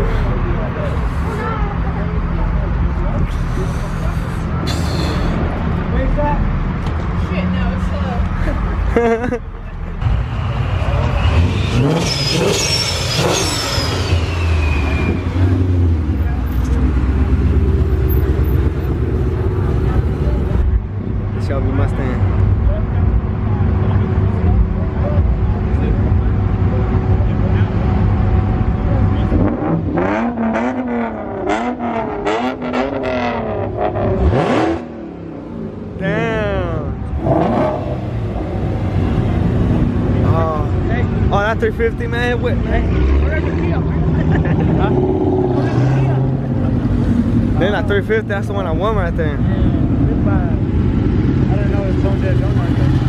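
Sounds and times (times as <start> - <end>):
car engine revving: 10.0 - 20.8, 21.4 - 53.0.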